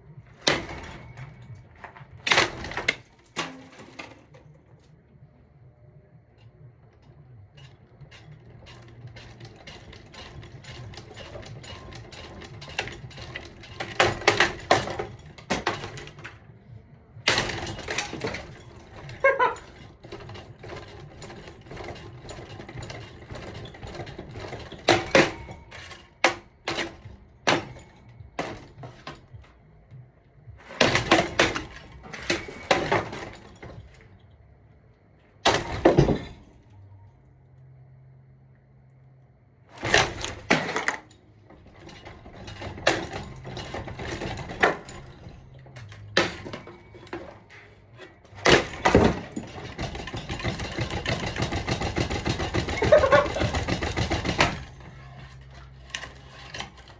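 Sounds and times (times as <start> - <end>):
ceiling fan being smashed: 0.3 - 4.5, 8.5 - 16.5, 17.2 - 29.4, 30.6 - 34.0, 35.4 - 36.7, 39.7 - 56.9
pieces rattling: 39.8 - 56.9.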